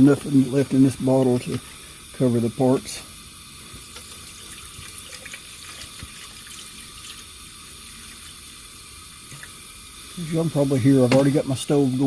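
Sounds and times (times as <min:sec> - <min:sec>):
stove burner hissing: 0:00.0 - 0:12.0
liquid pouring from bottle: 0:03.8 - 0:08.5.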